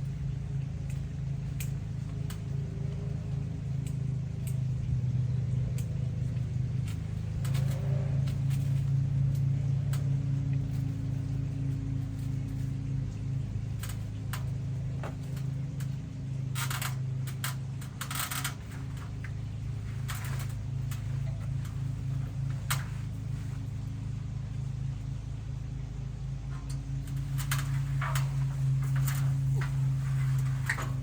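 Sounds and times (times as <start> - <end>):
engine humming: 0.0 - 31.0
rustling crackling bursts: 26.5 - 31.0.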